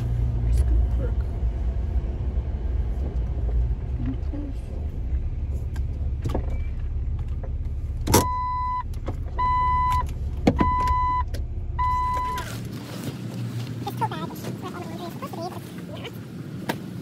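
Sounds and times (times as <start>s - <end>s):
car engine running: 0.0s - 17.0s
electronic warning beep: 8.2s - 12.4s.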